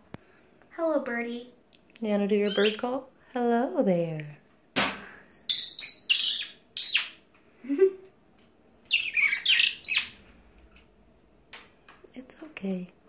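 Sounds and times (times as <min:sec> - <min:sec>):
bird chattering calls: 0:02.4 - 0:02.8, 0:05.3 - 0:07.2, 0:08.9 - 0:10.2.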